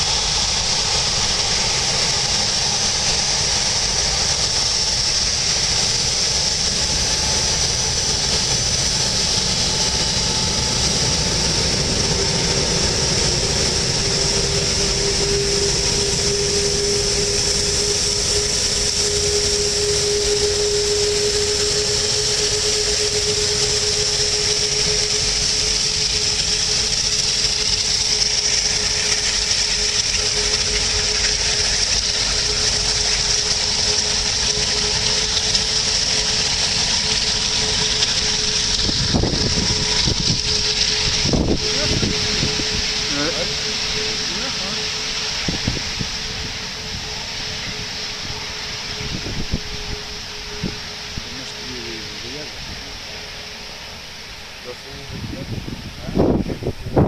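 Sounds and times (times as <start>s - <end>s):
droning tone: 0.0s - 57.0s
jet engines whining: 0.0s - 57.0s.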